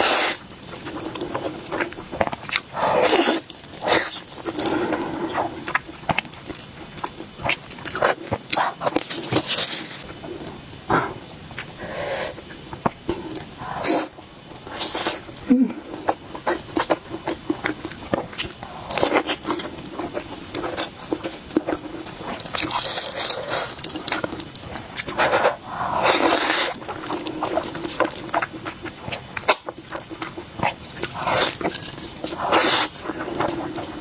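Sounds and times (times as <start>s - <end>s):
wet chewing: 0.0s - 34.0s.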